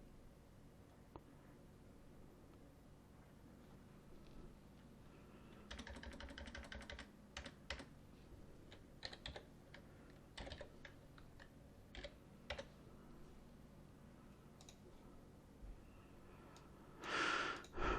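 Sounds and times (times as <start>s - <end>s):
typing on computer keyboard: 5.6s - 7.9s, 8.7s - 12.7s.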